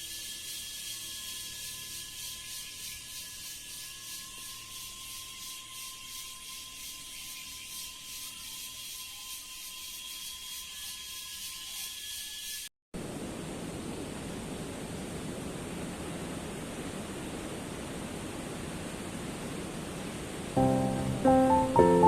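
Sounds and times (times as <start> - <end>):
high-pitched insect singing: 0.0 - 12.7
insects pulsing buzz: 0.0 - 22.0.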